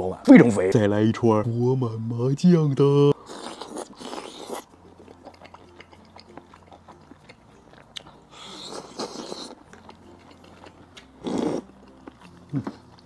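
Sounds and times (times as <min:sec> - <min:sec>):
biting and chewing food: 0:03.2 - 0:13.0.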